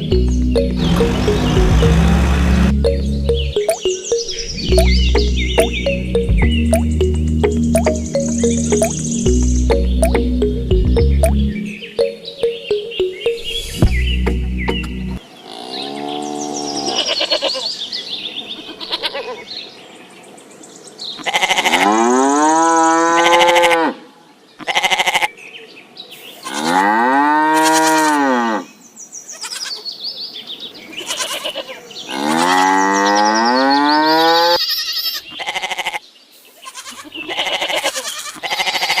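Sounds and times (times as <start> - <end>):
cow mooing: 0.8 - 2.7, 26.5 - 28.7, 32.1 - 34.7.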